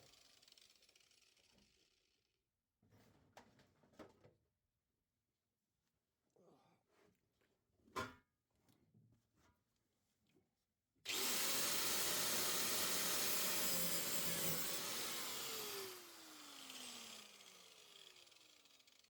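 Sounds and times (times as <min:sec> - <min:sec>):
electric power tool running: 0:11.1 - 0:19.0.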